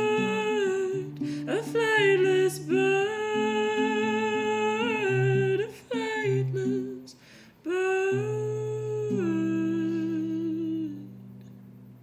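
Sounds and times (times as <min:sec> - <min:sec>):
woman humming long notes: 0:00.0 - 0:11.8
soft breath: 0:07.1 - 0:07.7.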